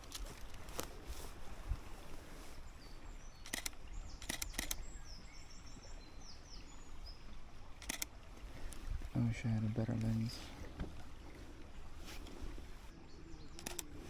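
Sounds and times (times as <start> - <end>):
songbird warbling: 2.4 - 14.0
camera shutter clicking: 3.4 - 4.8, 7.8 - 8.1, 13.6 - 14.0.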